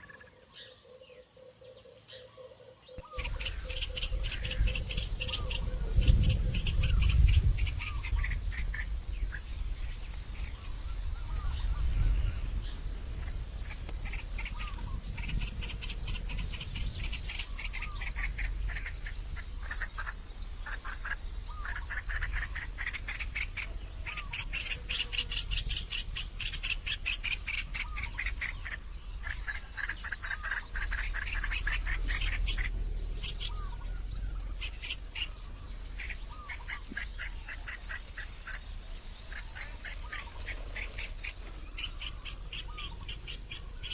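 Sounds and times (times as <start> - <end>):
chorus of trilling animal calls: 0.0 - 9.4, 11.2 - 43.9
low rumble: 3.2 - 19.6, 30.6 - 36.9.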